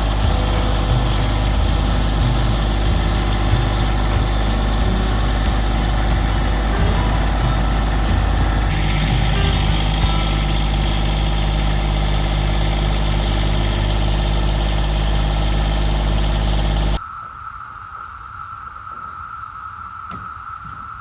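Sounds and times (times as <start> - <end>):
engine idling: 0.0 - 17.0
cicadas singing: 0.0 - 21.0.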